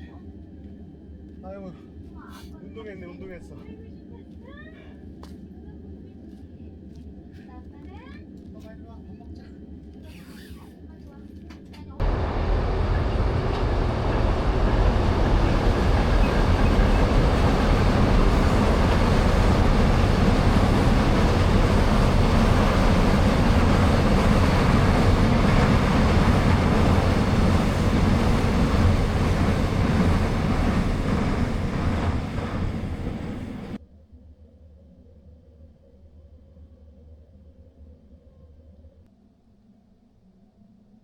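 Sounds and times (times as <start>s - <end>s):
train wheels rumbling on track: 11.6s - 33.8s.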